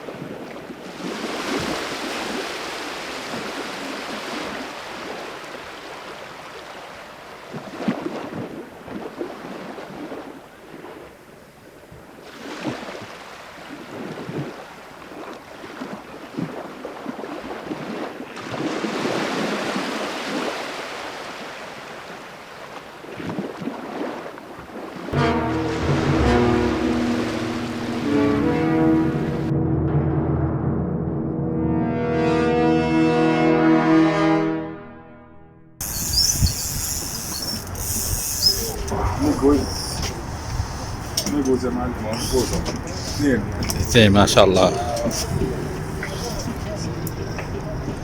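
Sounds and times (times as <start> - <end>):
sea waves washing onto shore: 0.0 - 11.3, 12.1 - 29.5
wind buffeting microphone: 35.8 - 48.0.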